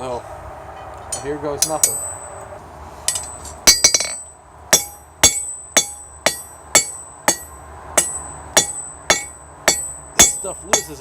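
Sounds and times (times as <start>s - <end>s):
hammer striking metal on anvil: 1.6s - 2.3s, 3.1s - 11.0s.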